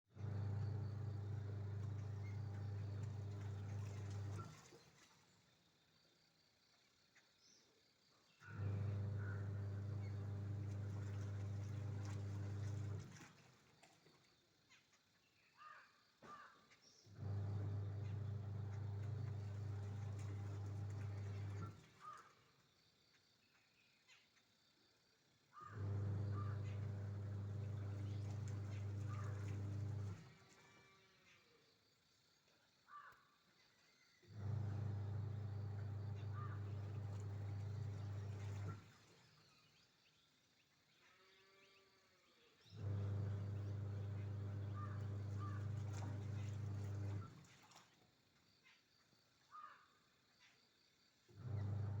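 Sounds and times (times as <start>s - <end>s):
steady low hum: 8.4s - 13.3s, 25.6s - 30.4s, 42.7s - 47.6s
bird short calls: 15.6s - 16.8s, 22.0s - 22.4s, 25.6s - 27.3s, 28.0s - 29.8s, 36.1s - 37.1s, 43.6s - 46.6s, 49.5s - 50.0s
faint bird chirps: 35.2s - 47.6s, 48.4s - 51.9s.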